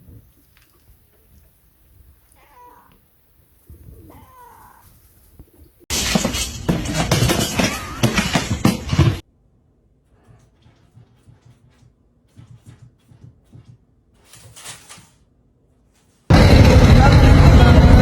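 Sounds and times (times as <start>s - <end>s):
animal cries gliding in pitch: 2.4s - 3.0s, 4.1s - 4.9s
loud crashing clatter: 5.9s - 9.2s, 16.3s - 18.0s.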